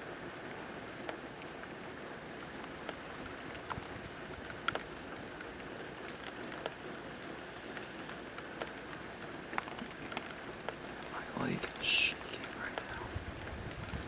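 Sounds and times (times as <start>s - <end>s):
rain hissing: 10.8s - 14.0s.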